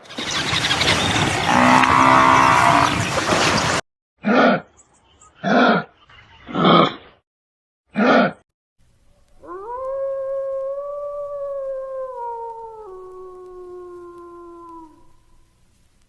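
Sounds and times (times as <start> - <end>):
wolf howling: 0.2 - 3.0, 9.4 - 15.3.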